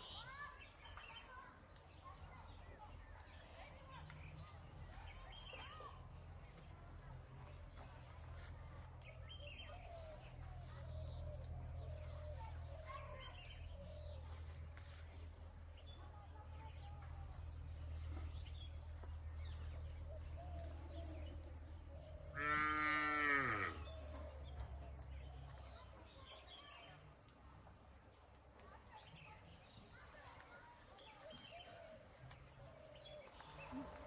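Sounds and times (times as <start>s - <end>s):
cow mooing: 22.4s - 23.9s.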